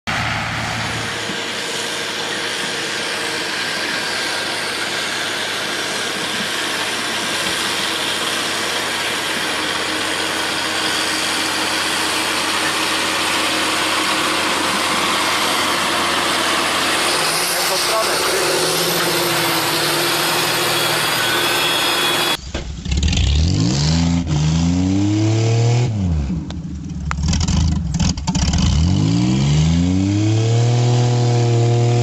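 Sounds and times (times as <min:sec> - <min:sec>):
vehicle road noise hiss: 0:00.1 - 0:18.1.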